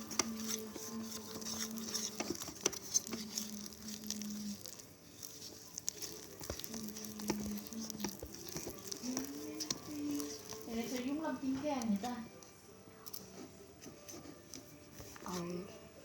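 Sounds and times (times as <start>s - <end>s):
slime squishing and clicking: 0.0s - 12.2s.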